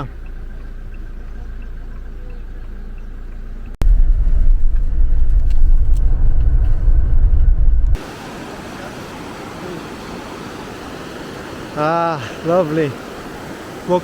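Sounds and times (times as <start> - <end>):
vehicle low rumble: 0.0 - 8.0.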